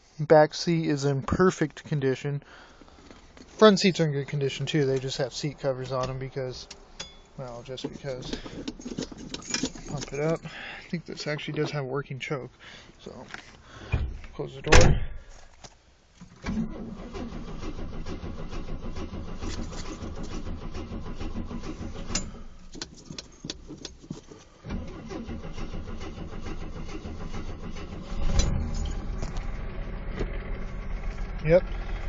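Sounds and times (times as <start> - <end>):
car engine cold-starting and revving: 16.4 - 22.7, 24.6 - 32.0.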